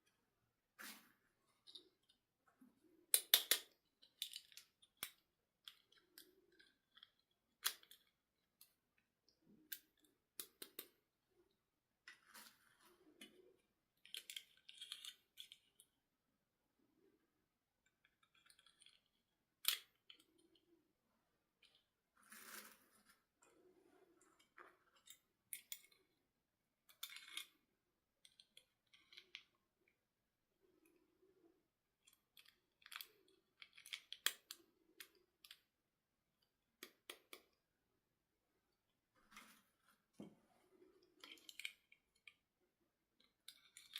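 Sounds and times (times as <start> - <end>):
plastic parts clicking: 3.1 - 8.7.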